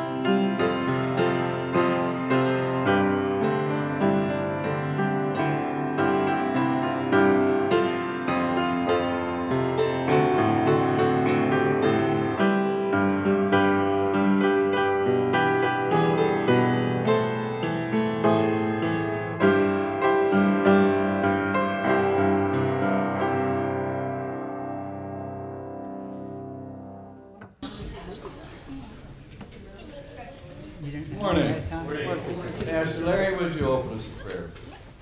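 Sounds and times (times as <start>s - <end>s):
solo piano prelude: 0.0s - 27.6s.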